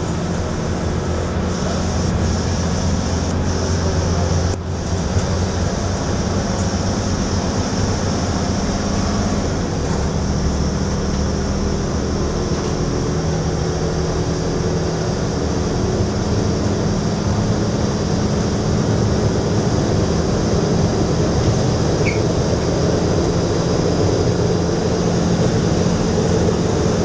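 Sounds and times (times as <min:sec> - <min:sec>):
train interior drone and rumble: 0:00.0 - 0:27.0
faint high whine: 0:00.1 - 0:14.3.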